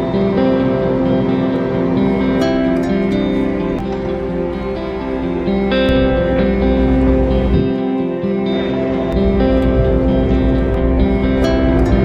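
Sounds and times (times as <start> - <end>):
gentle plucked guitar music: 0.0 - 12.0.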